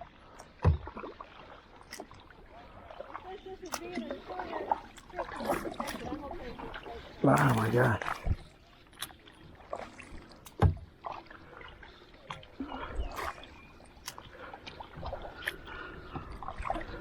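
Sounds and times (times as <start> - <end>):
light water noise: 0.0 - 17.0
kayak and paddle knocking: 10.4 - 11.2.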